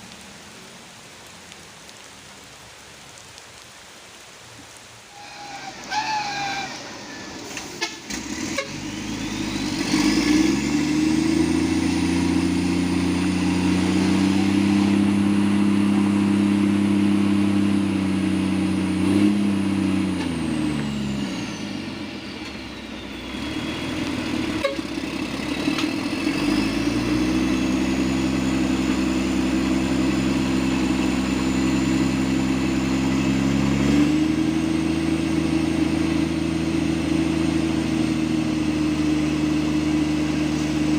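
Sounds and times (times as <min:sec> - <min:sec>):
high engine whine: 0:05.0 - 0:40.9
truck engine revving: 0:05.1 - 0:40.9.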